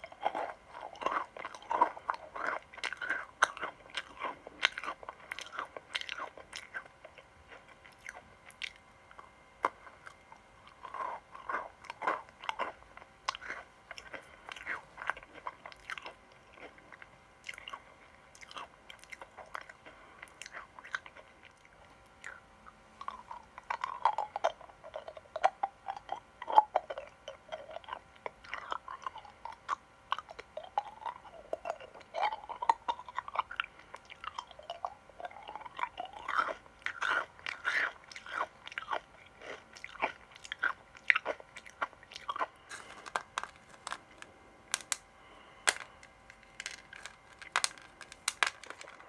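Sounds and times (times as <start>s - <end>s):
crunching candy: 0.0s - 49.0s
wet clicking mouth sounds: 23.1s - 38.5s.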